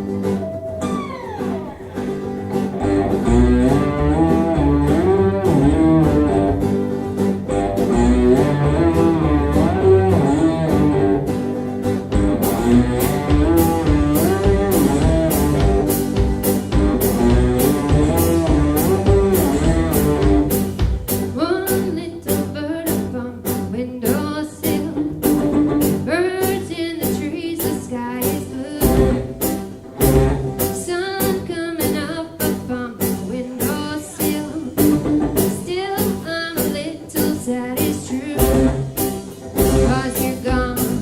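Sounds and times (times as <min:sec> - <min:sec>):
steady beat: 0:00.0 - 0:04.5
plucked guitar: 0:00.0 - 0:41.0
person singing: 0:30.8 - 0:38.8.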